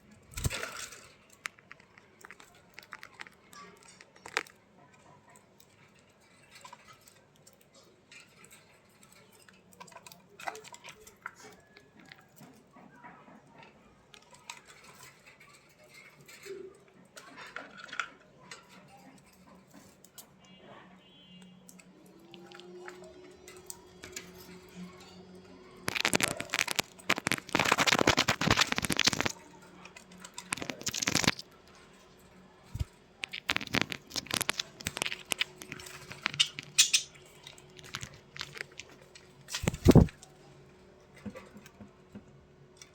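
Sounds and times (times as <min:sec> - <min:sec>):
budgerigars chirping and chattering: 0:36.0 - 0:37.2.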